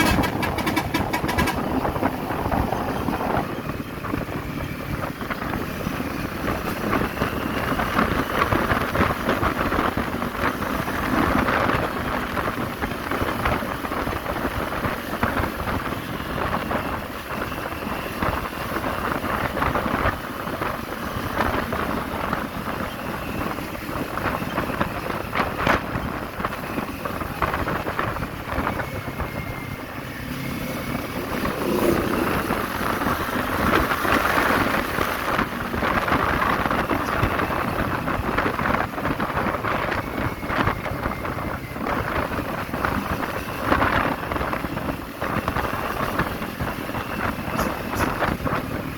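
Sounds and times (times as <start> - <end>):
motorcycle engine running: 0.0 - 48.9
wind noise on microphone: 0.0 - 48.9.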